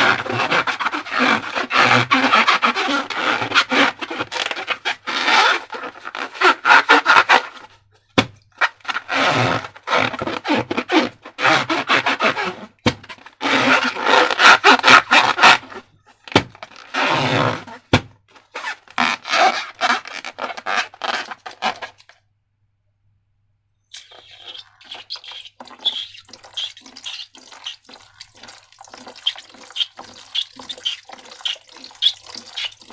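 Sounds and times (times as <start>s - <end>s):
slime squeezed with rubber balloons: 8.6s - 22.0s, 23.9s - 32.9s.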